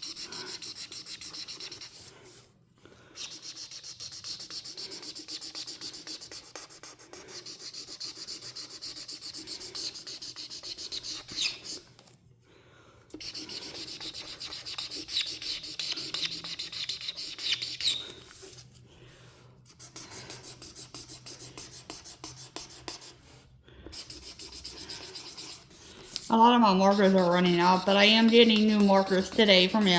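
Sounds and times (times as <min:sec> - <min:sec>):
marker rubbing on paper: 0:00.0 - 0:02.5, 0:03.2 - 0:11.9, 0:13.2 - 0:18.7, 0:19.7 - 0:29.9
marker squeaks: 0:10.7 - 0:11.8, 0:13.9 - 0:18.4.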